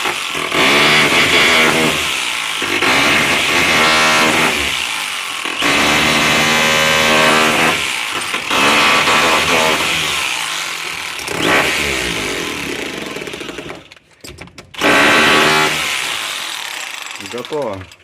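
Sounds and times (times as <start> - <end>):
rotary hammer running: 14.8 - 18.0.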